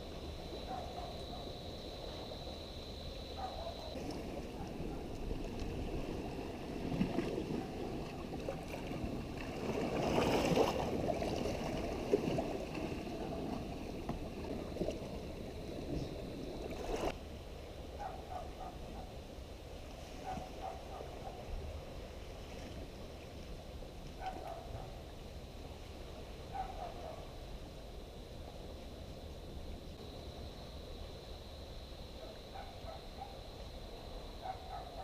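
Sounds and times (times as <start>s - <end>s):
water washing and lapping: 3.5s - 17.2s.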